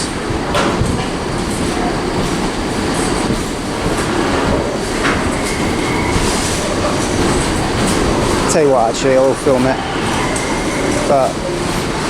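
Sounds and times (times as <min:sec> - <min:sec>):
freight train wagons rolling: 0:00.0 - 0:12.0
rail clicks: 0:00.0 - 0:12.0.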